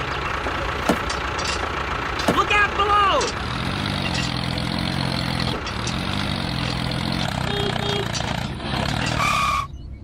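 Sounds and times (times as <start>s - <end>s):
small engine running: 3.3s - 9.2s.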